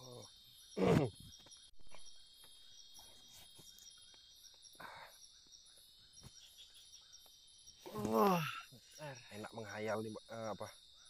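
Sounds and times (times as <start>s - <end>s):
insect chorus with pulsing trill: 0.0s - 11.0s.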